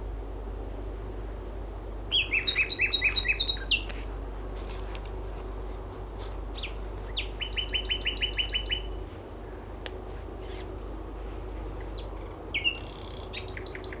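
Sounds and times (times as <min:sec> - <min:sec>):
steady low hum: 0:00.0 - 0:14.0
nightingale singing: 0:01.6 - 0:03.9, 0:06.5 - 0:09.0, 0:11.8 - 0:14.0.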